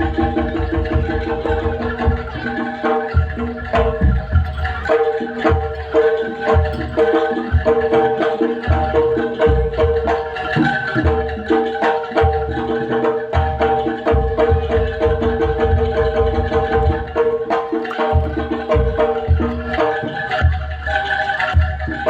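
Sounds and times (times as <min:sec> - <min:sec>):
gong-chime and metallophone strokes: 0:00.0 - 0:10.0
hand drums: 0:00.0 - 0:22.0
low drum beats: 0:00.0 - 0:22.0.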